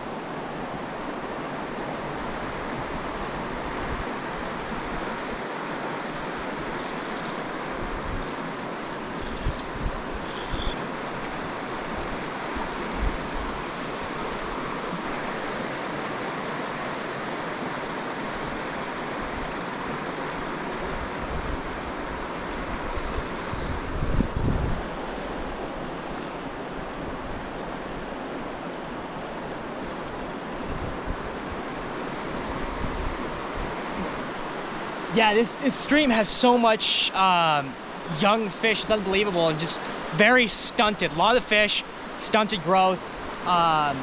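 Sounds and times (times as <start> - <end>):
stream rushing over rocks: 0.0 - 24.0, 24.8 - 44.0
wind buffeting microphone: 7.7 - 10.8, 20.8 - 25.6, 30.6 - 34.2.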